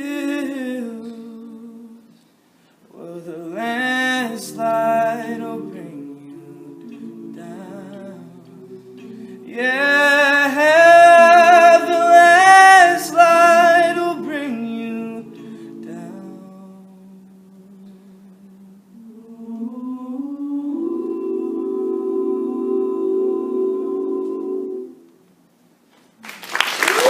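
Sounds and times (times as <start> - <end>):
male a cappella group singing: 0.0 - 2.2, 2.9 - 25.0.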